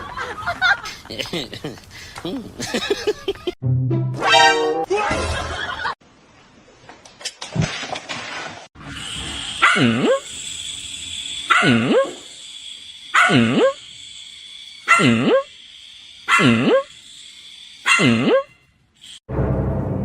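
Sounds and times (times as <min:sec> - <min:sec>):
steady hiss: 0:09.1 - 0:17.9
dog barking: 0:09.6 - 0:10.2, 0:11.5 - 0:12.2, 0:13.2 - 0:13.8, 0:14.9 - 0:15.4, 0:17.9 - 0:18.5.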